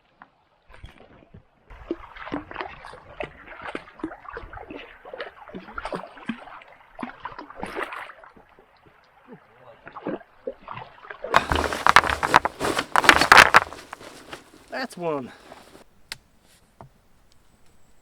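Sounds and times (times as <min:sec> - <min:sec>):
stones clacking together: 0:11.4 - 0:15.8.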